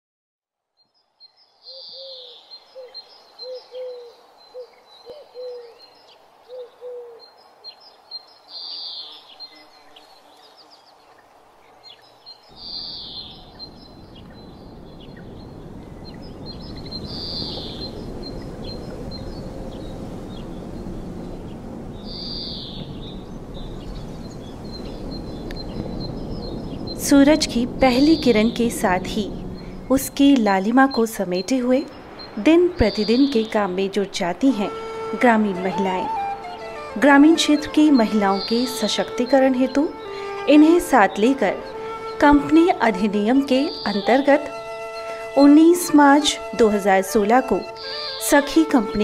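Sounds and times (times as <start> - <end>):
birds calling: 1.5 - 49.0
steady rushing noise: 12.5 - 45.4.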